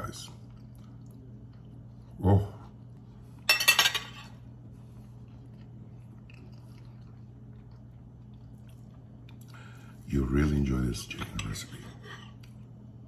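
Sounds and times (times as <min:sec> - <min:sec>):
steady low hum: 0:00.0 - 0:13.0
cutlery clinking on a plate: 0:03.5 - 0:04.3.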